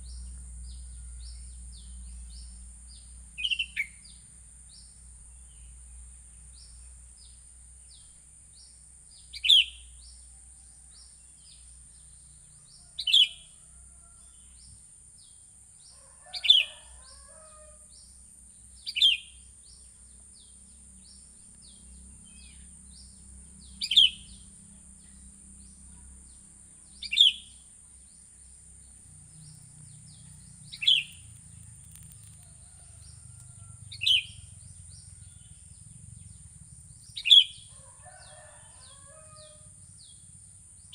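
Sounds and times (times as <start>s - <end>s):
steady high hiss: 17.8s - 37.7s.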